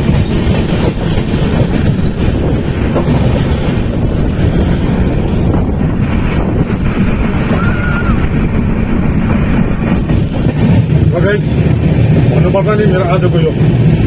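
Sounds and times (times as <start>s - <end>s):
train wheels rumbling on rails: 0.0s - 14.0s
faint high squeal: 7.5s - 8.3s.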